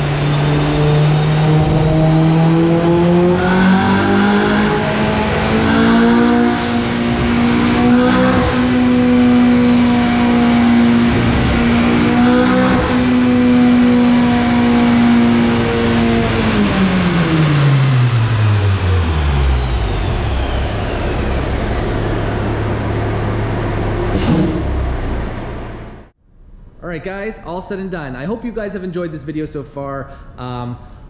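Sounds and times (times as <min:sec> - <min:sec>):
car engine running at high revs: 0:00.0 - 0:26.1
short sharp sound: 0:24.1 - 0:25.0.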